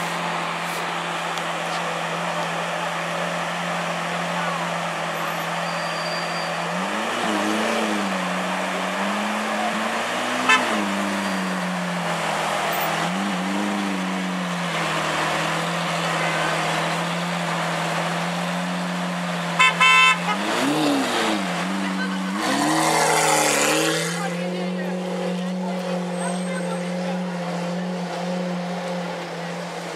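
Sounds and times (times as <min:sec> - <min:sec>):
sports car engine idling and revving: 0:00.0 - 0:29.9
car horn toots: 0:10.4 - 0:11.0, 0:19.6 - 0:20.8.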